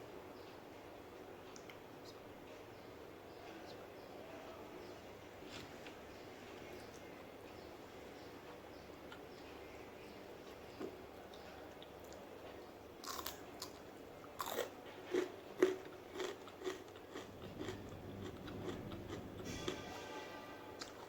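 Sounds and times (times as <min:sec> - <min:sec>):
crunchy food chewing: 0:10.8 - 0:19.8.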